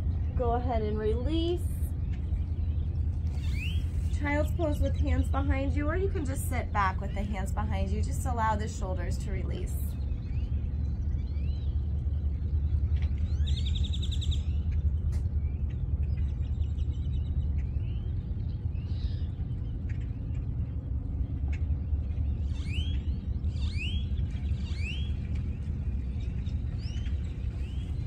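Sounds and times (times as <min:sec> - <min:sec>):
steady low rumble: 0:00.0 - 0:28.0
birds chirping: 0:00.2 - 0:07.3
bird rising calls: 0:02.4 - 0:04.6
bird trilling: 0:03.3 - 0:04.1.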